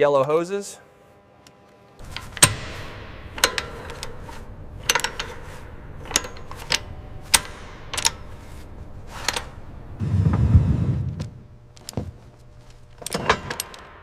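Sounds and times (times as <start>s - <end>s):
low rumble: 9.8s - 12.2s.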